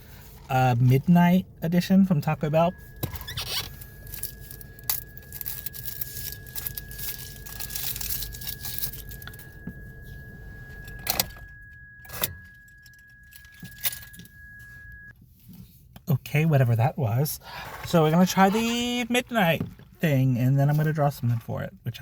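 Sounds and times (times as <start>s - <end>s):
steady high-pitched tone: 0.5s - 15.1s
rustling and crinkling: 2.9s - 11.0s.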